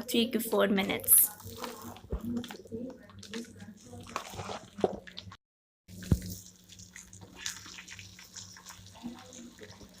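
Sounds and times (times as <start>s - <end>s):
chicken sizzling in hot oil: 6.0s - 10.0s.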